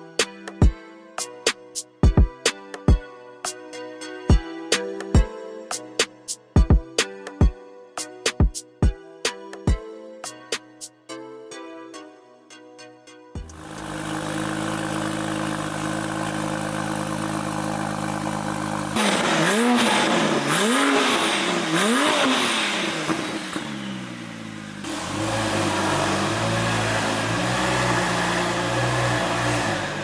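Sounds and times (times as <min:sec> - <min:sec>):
car engine idling and revving: 0:13.4 - 0:30.0.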